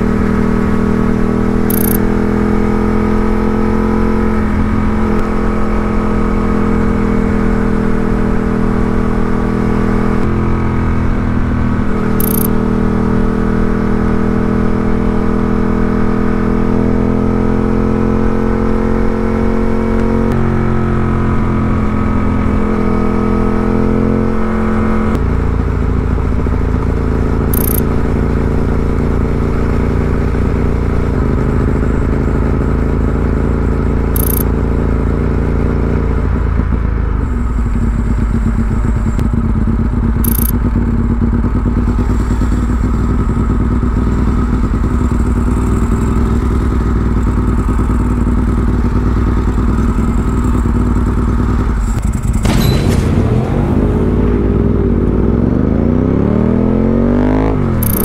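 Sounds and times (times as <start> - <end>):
motorcycle engine running: 0.0 - 53.2, 53.8 - 58.0.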